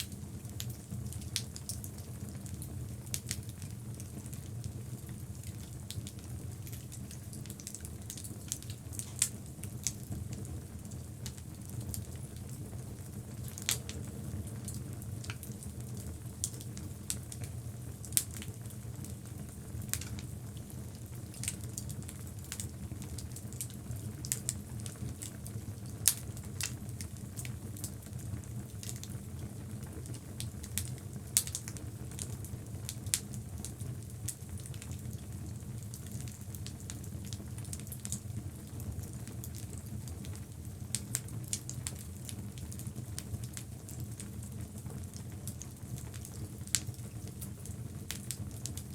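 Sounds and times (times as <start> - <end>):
burning wood crackles and pops: 0.0 - 48.9
low flame noise: 0.0 - 48.9.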